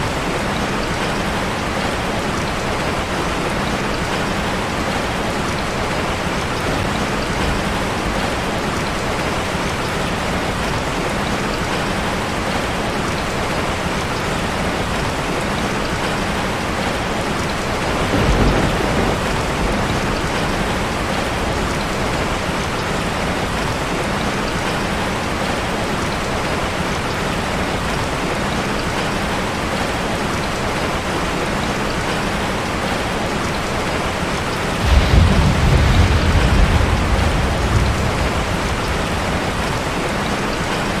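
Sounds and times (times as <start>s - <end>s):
rain drumming on a metal roof: 0.0s - 41.0s
low rumble: 34.8s - 40.4s.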